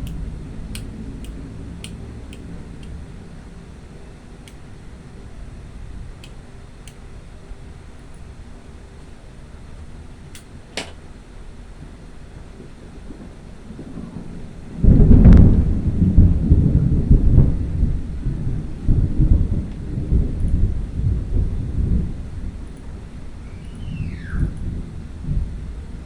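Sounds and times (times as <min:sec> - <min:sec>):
thunder crack and rumble: 0:11.4 - 0:26.0.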